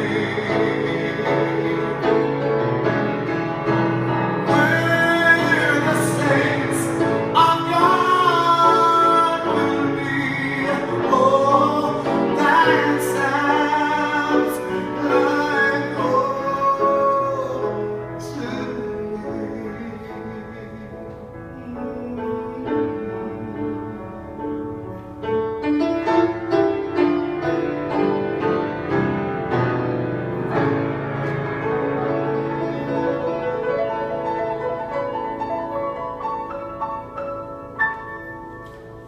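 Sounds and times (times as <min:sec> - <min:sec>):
person singing gospel: 0:00.0 - 0:02.3, 0:04.4 - 0:24.4.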